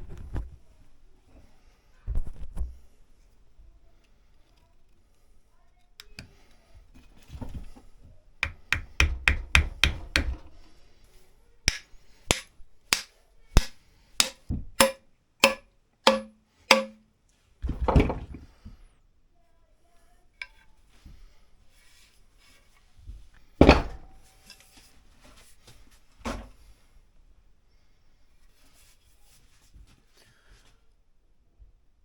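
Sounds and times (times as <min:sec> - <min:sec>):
hammer striking axe head: 0:08.4 - 0:10.5, 0:11.7 - 0:17.0.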